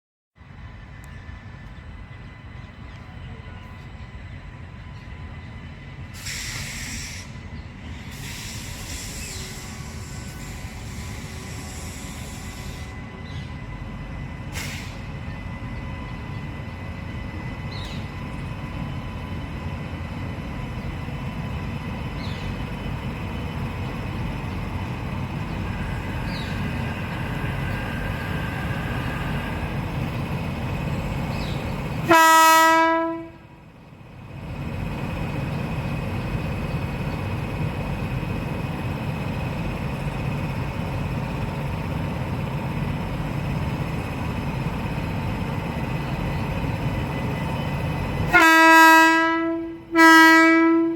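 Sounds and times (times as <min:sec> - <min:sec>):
train rumbling on rails: 0:00.4 - 0:50.9
locomotive horn blast: 0:32.0 - 0:33.6, 0:48.2 - 0:50.9.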